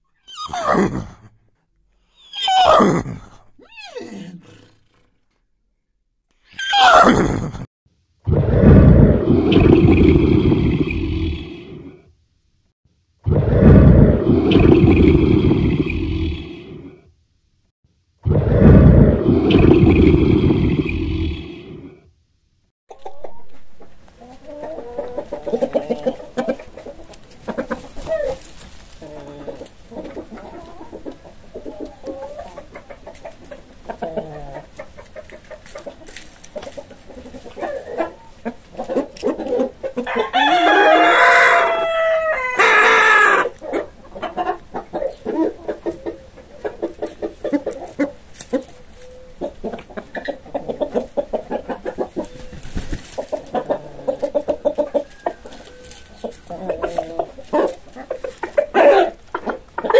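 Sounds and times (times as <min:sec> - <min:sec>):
chickens clucking: 0:22.9 - 0:59.9
rooster crowing: 0:40.0 - 0:43.5.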